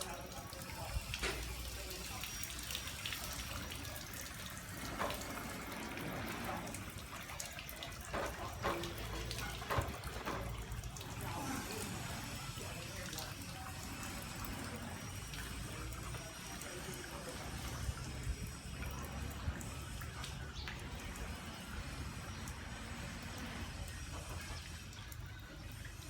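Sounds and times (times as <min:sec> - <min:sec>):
water trickling and splashing: 0:00.0 - 0:26.0
small knocks: 0:08.0 - 0:11.0.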